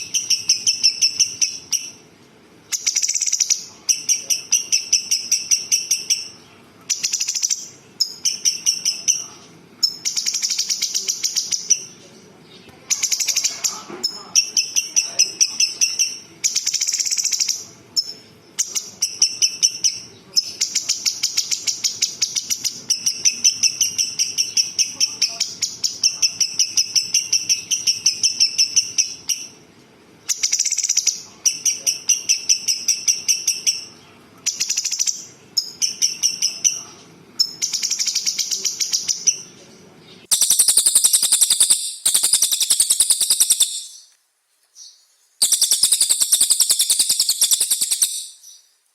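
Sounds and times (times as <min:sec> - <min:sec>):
songbird rattling trills: 0:40.3 - 0:44.1, 0:45.4 - 0:48.6.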